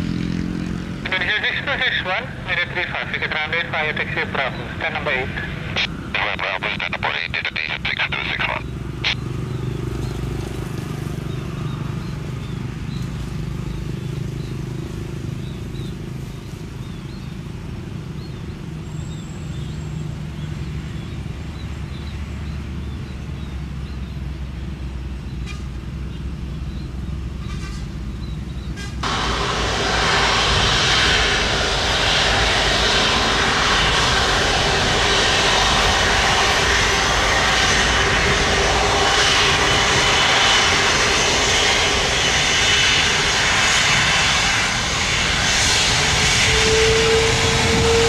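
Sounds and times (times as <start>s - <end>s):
jet engines rumbling: 0.0s - 48.0s.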